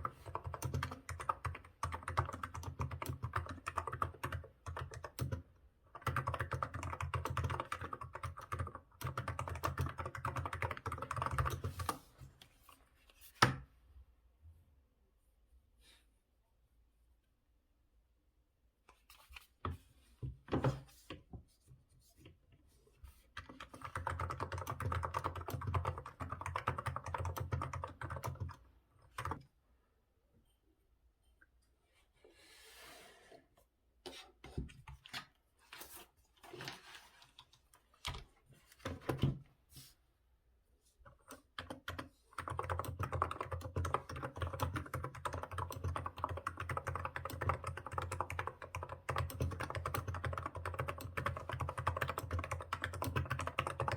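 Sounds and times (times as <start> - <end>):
keyboard typing: 0.0 - 12.0, 23.4 - 29.5, 41.2 - 53.9.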